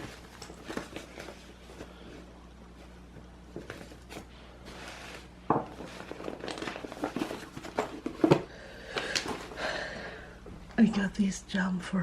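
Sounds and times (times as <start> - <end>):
crinkling: 0.0 - 9.7
objects knocking and clicking: 5.5 - 9.4.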